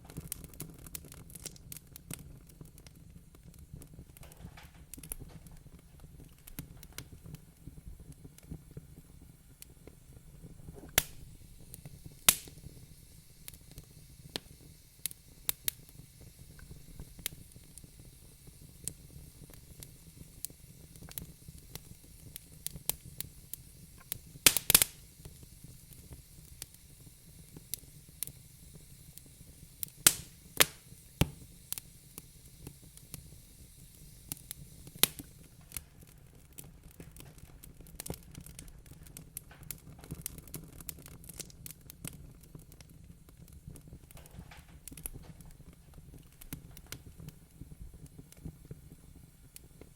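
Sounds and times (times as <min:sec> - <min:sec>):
wood fire crackling: 0:00.0 - 0:49.9
sharp loud pops: 0:12.3 - 0:12.6, 0:30.0 - 0:31.4.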